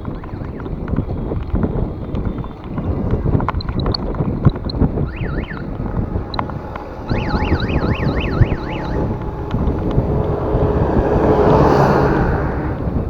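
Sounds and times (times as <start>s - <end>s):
road noise: 0.0s - 13.0s
wind: 0.0s - 13.0s
motor vehicle passing: 2.7s - 13.0s
warbling siren-like tone: 5.0s - 12.9s.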